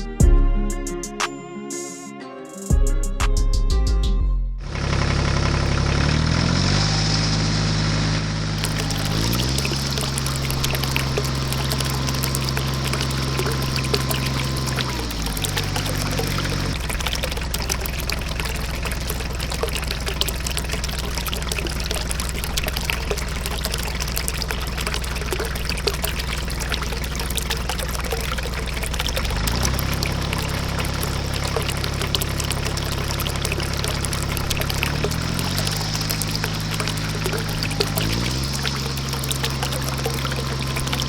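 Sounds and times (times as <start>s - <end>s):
low steady hum: 8.6s - 41.0s
water pouring and trickling: 8.6s - 41.0s.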